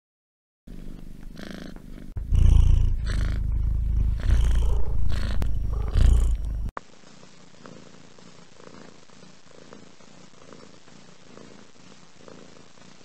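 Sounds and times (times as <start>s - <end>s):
cat purring: 0.7s - 13.0s.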